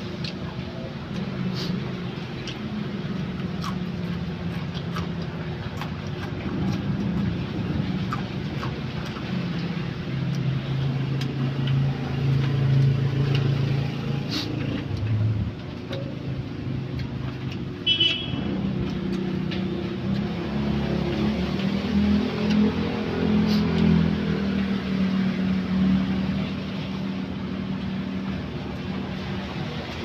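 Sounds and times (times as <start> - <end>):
vehicle engine humming: 0.0 - 30.0.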